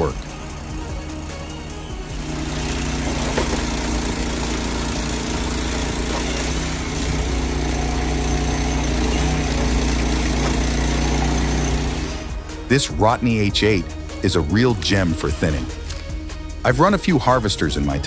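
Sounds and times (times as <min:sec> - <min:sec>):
heavy machine engine running: 0:00.0 - 0:12.5.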